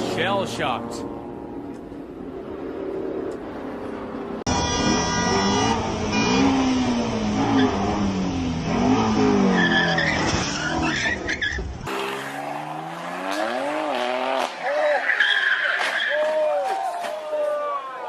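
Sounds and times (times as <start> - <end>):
car engine revving: 4.5 - 11.2, 11.8 - 14.6
tyre squeal: 14.6 - 16.3.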